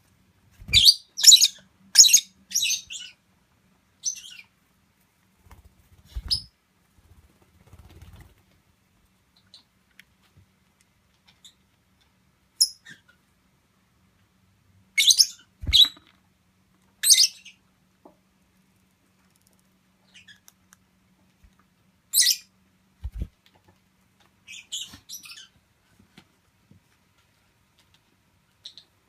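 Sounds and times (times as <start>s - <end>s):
parakeet chirping: 0.7s - 3.2s, 4.0s - 4.5s, 15.0s - 16.0s, 17.0s - 17.6s, 20.0s - 20.5s, 22.1s - 22.5s.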